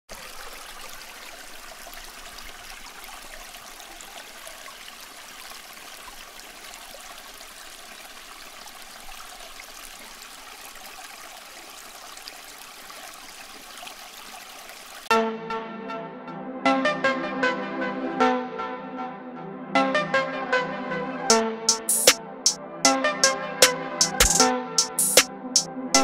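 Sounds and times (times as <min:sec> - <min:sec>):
water trickling onto pebbles: 0:00.1 - 0:15.1.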